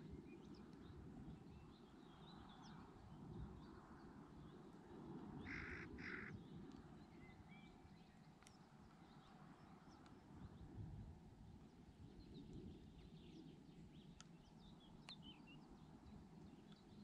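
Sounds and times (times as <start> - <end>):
harsh bird calls: 5.4 - 6.4.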